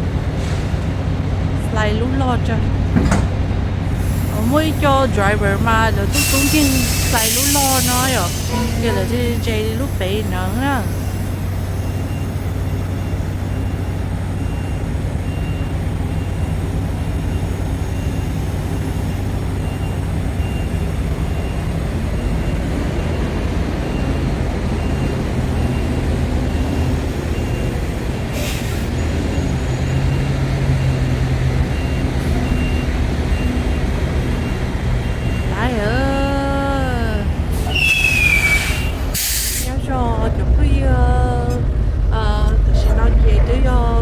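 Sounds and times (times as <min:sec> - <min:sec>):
truck diesel engine humming: 0:00.0 - 0:44.0
air brakes hissing: 0:03.9 - 0:13.6, 0:28.2 - 0:30.2, 0:37.5 - 0:39.8
backup alarm beeping: 0:04.1 - 0:44.0.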